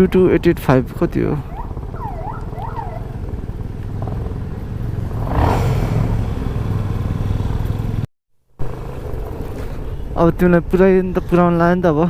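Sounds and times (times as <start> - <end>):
motorcycle engine running: 0.0 - 8.0
road and wind noise: 0.0 - 12.0.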